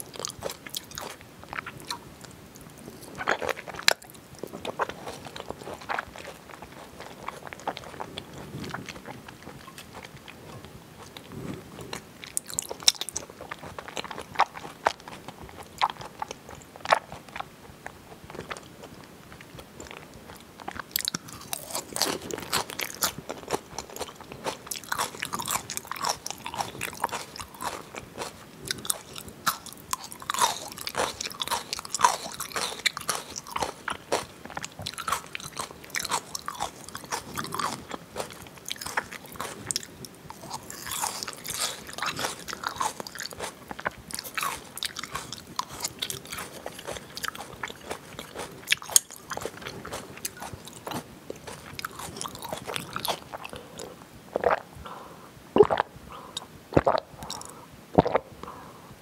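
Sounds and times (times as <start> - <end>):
crunching while chewing: 0.0 - 54.7
wet mouth clicks: 55.6 - 58.3.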